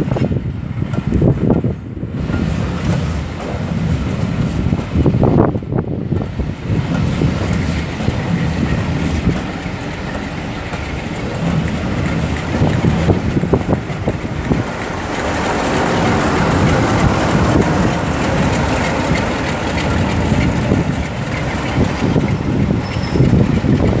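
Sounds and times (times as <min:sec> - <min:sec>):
steam train rumbling: 0:00.0 - 0:24.0
wheels clattering on rails: 0:00.0 - 0:24.0.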